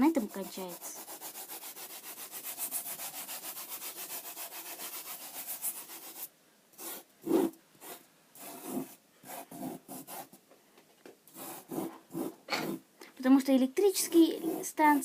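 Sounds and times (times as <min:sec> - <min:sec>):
sand rubbed on glass: 0:00.0 - 0:06.3.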